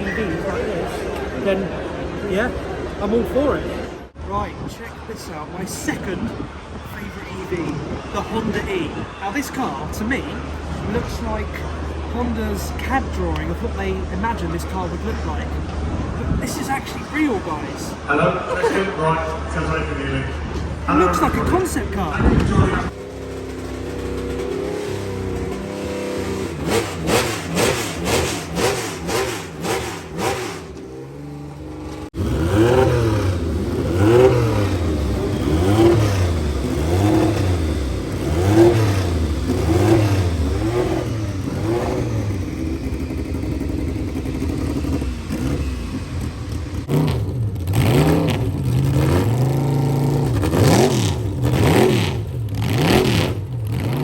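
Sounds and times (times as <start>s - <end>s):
car engine revving: 19.2s - 54.0s.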